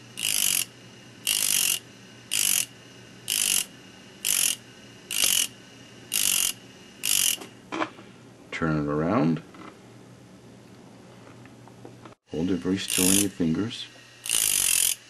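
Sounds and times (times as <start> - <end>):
grinding hisses on disc: 0.0 - 7.5, 12.3 - 15.0
rotary tool humming: 0.0 - 7.7, 12.3 - 15.0.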